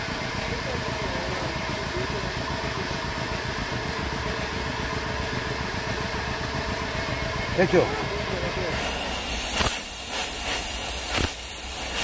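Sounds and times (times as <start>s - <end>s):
low mechanical rumble: 0.0s - 12.0s
metal cutting hiss: 8.7s - 12.0s.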